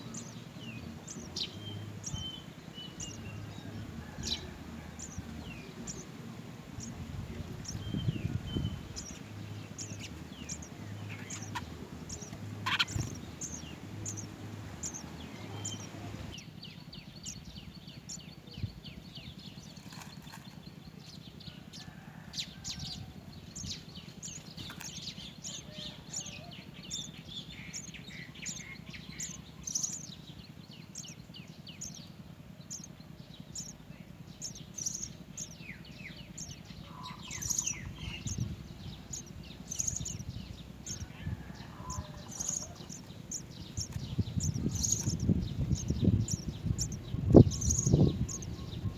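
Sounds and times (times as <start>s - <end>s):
sparrows chirping: 0.0s - 48.9s.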